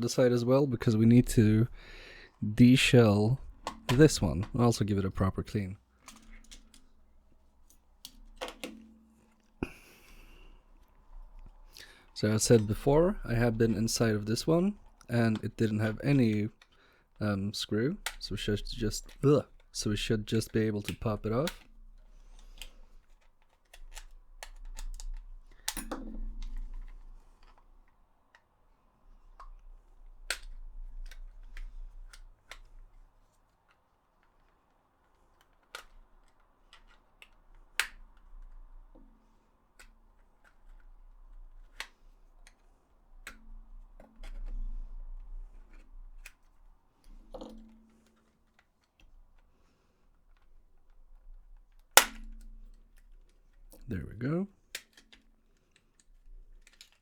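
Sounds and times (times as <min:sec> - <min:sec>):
plastic controller shell clicking: 0:03.5 - 0:04.6, 0:06.0 - 0:10.2, 0:18.0 - 0:28.5, 0:29.3 - 0:33.0, 0:33.6 - 0:49.5, 0:50.1 - 0:53.8, 0:54.7 - 0:57.0.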